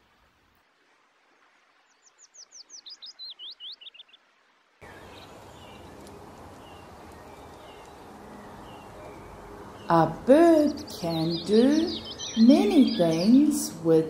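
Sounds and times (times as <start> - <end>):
outdoor background noise: 0.0 - 14.0
faint bird chirps: 1.9 - 4.2, 10.6 - 13.4
songbird whistled notes: 10.7 - 13.3.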